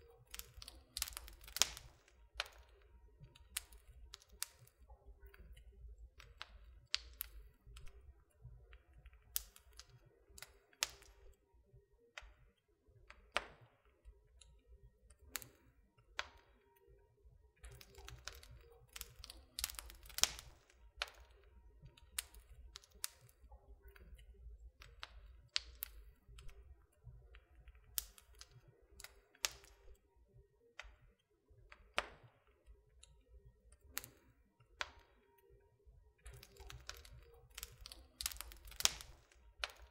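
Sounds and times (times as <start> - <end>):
wood fire crackling: 0.0 - 11.4, 14.5 - 16.7, 17.5 - 30.0, 33.8 - 35.1, 36.2 - 39.9.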